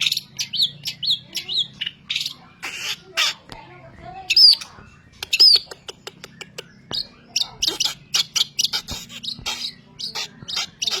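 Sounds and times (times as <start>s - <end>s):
shrike singing: 4.2s - 11.0s.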